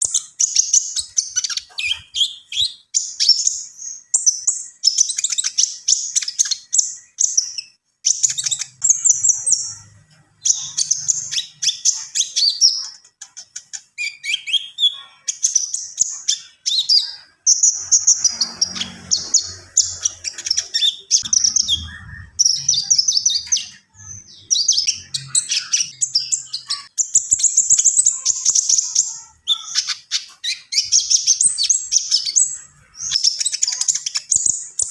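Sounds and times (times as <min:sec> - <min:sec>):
songbird singing: 0:00.0 - 0:34.9.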